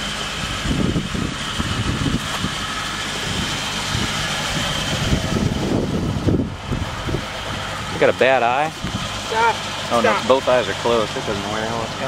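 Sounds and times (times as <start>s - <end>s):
vehicle engine idling: 0.0s - 12.0s
wind buffeting microphone: 0.4s - 9.2s.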